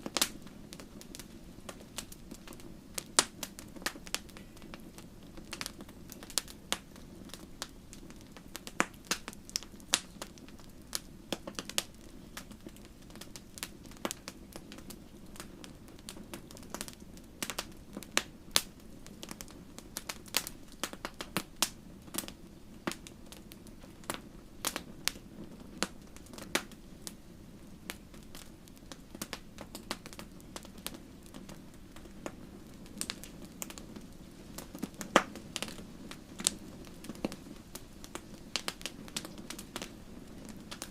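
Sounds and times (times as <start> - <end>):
low rush of flames: 0.0 - 40.9
wood fire popping and crackling: 0.0 - 40.9.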